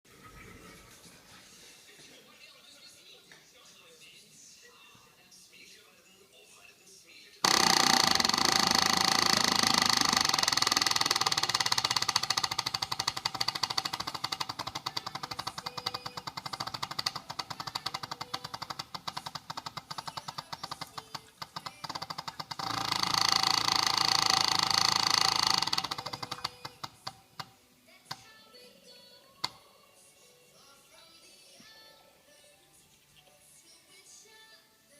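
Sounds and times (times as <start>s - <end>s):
electric fuel pump buzzing: 7.4s - 20.1s, 20.7s - 27.5s.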